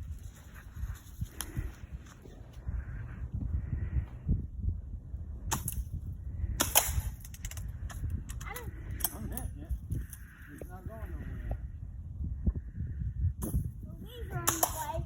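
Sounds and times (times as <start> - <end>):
bb gun cracks: 6.6 - 9.2, 14.5 - 14.9.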